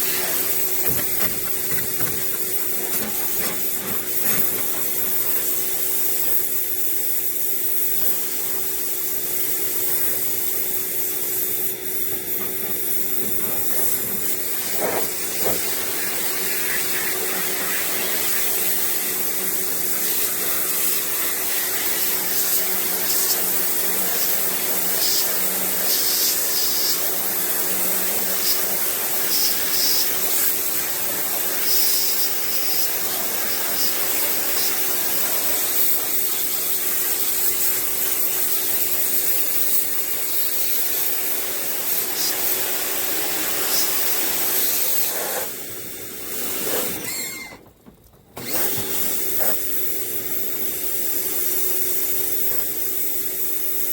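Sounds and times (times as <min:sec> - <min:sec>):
water jet spraying: 0:00.0 - 0:06.4, 0:09.8 - 0:39.6
pressure washer motor hum: 0:00.0 - 0:53.9.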